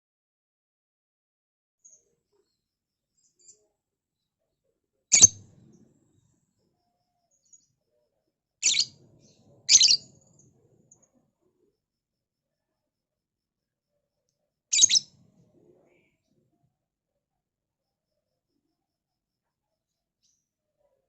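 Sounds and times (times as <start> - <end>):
lovebird shrill chirping: 5.1 - 5.4, 8.6 - 10.1, 14.7 - 15.1.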